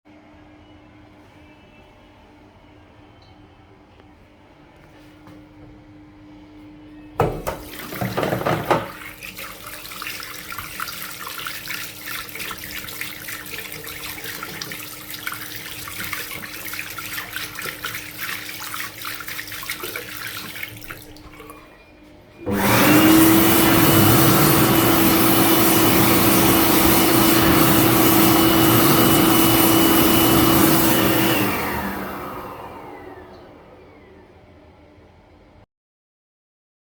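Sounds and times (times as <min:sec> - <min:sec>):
hand dryer blowing: 0:07.2 - 0:21.3, 0:22.4 - 0:34.5.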